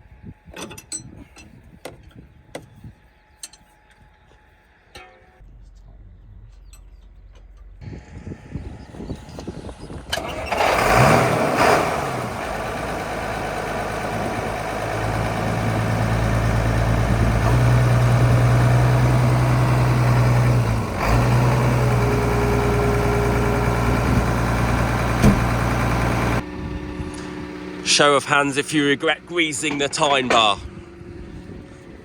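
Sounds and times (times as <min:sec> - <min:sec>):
tractor engine cranking and starting: 0:06.5 - 0:32.0
tractor engine idling: 0:09.2 - 0:32.0.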